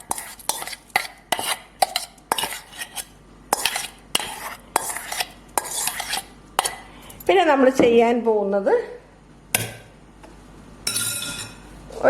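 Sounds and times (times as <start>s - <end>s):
metal spoon scraping steel vessels: 0.0s - 7.3s, 10.9s - 11.7s.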